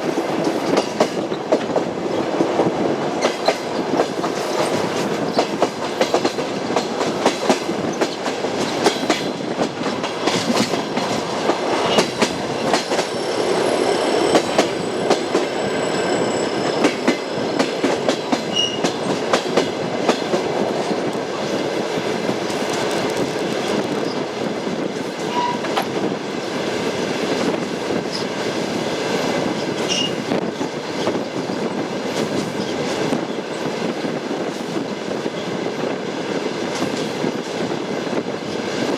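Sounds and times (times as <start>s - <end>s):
train wheels clicking over rail joints: 0.0s - 15.6s, 16.7s - 24.3s
train running rumble: 0.0s - 38.9s.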